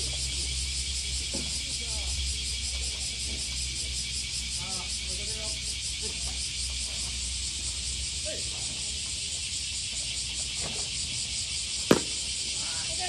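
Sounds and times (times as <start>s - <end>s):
cicadas droning: 0.0s - 13.0s
sharp crack: 11.9s - 12.7s.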